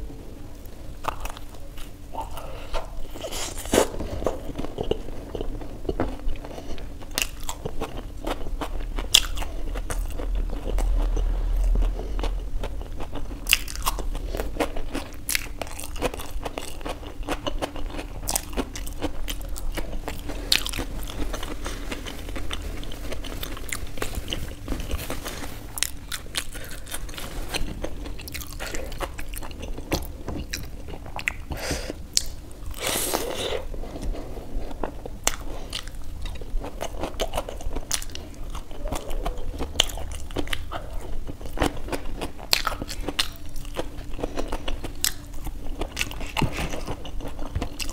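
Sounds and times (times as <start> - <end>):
crunching and chewing food: 0.0 - 47.9
loud burst of noise: 9.5 - 14.9.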